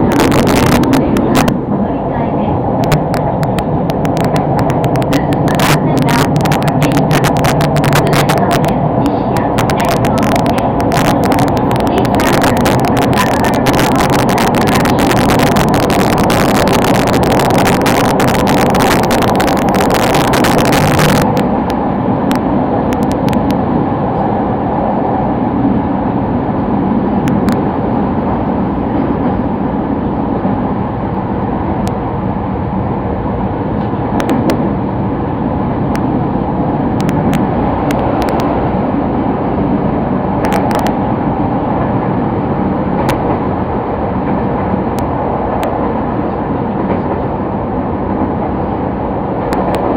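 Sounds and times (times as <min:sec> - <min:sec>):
train rumbling: 0:00.0 - 0:49.9.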